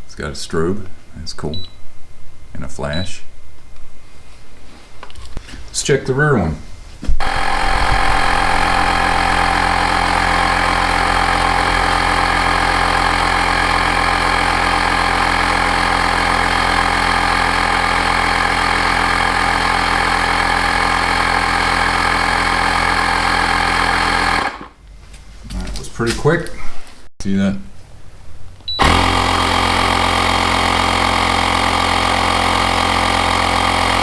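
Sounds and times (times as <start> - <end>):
portable air inflator running: 7.2 - 24.8, 28.8 - 34.0.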